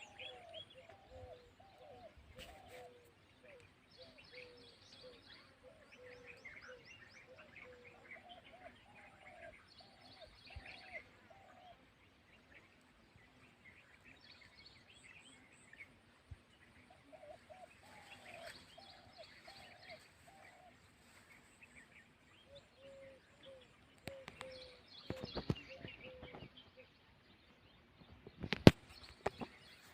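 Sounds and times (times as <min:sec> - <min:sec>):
bird cooing: 0:00.0 - 0:11.9, 0:16.9 - 0:20.8, 0:22.4 - 0:26.9
small birds chirping: 0:00.0 - 0:29.9.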